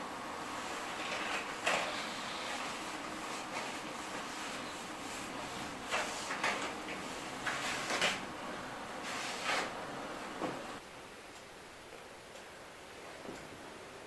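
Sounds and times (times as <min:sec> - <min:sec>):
steady hiss: 0:00.0 - 0:14.0
short sliding scraping sounds: 0:09.0 - 0:09.8.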